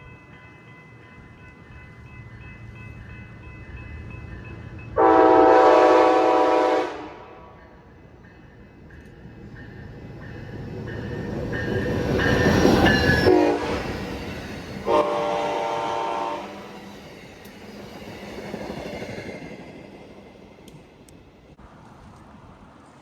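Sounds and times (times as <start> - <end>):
train rumble: 0.0 - 23.0
locomotive air horn: 5.0 - 7.6, 13.3 - 13.9, 14.8 - 16.6.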